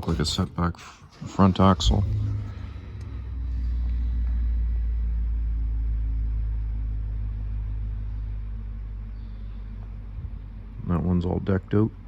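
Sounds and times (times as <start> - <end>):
faint steady hum: 0.0 - 12.0
vehicle engine rumble: 0.0 - 12.0.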